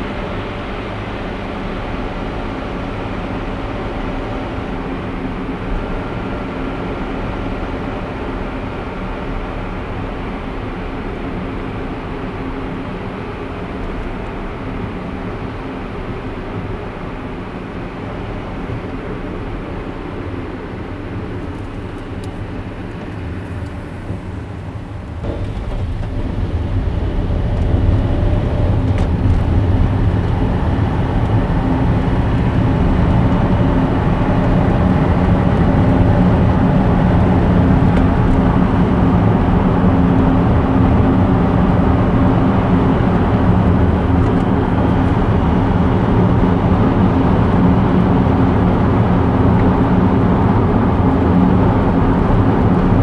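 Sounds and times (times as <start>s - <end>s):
car tyre and engine drone: 21.4s - 53.0s.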